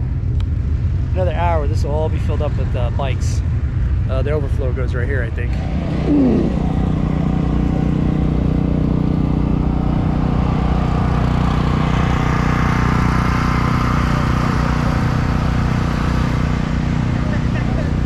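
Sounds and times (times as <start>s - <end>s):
motorcycle engine running: 5.3s - 18.0s.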